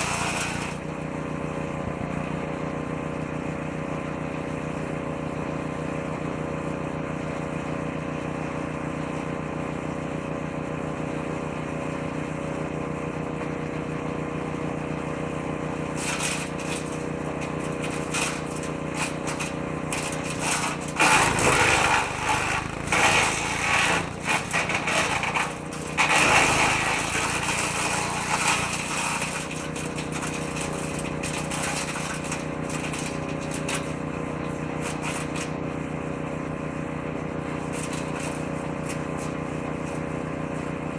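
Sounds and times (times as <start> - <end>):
woodchipper engine running: 0.0 - 40.9
branches being shredded: 16.0 - 34.0.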